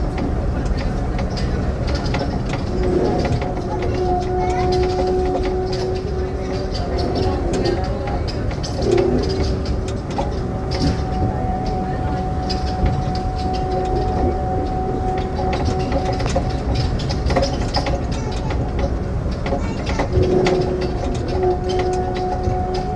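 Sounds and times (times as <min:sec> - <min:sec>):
steady whine: 0:00.0 - 0:22.9
train rumbling on rails: 0:00.0 - 0:22.9.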